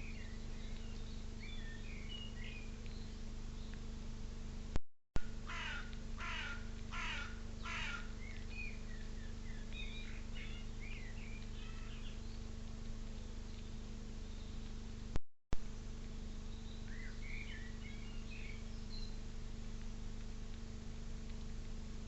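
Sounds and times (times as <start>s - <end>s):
small birds chirping: 0.0s - 4.1s, 5.5s - 15.1s, 15.7s - 22.0s
low electrical hum: 0.0s - 22.0s
crow cawing: 5.5s - 8.1s.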